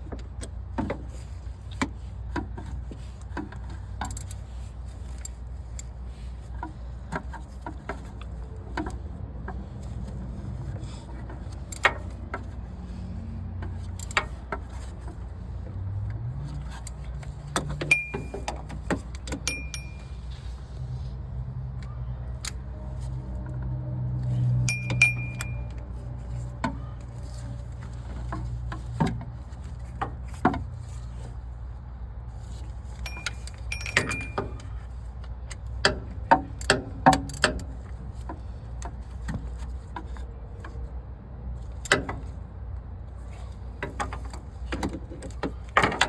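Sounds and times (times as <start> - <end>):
low steady hum: 0.0 - 39.6
hand tools clinking on metal: 16.8 - 20.3, 24.6 - 25.8, 32.9 - 34.8.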